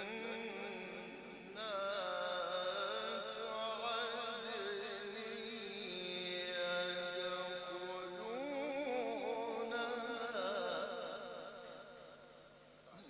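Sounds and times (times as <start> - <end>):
man chanting melodically: 0.0 - 12.2
faint high-pitched whine: 0.0 - 13.0.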